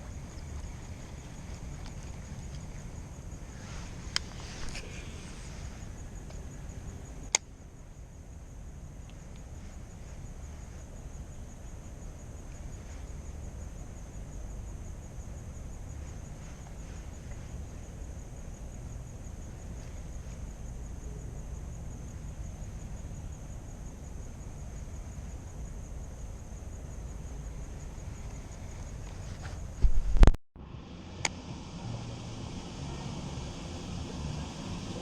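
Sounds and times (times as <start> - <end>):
faint clicks: 0.0 - 3.0
high-pitched insect trill: 0.0 - 29.8, 30.8 - 35.0
wind rumble on microphone: 24.6 - 35.0.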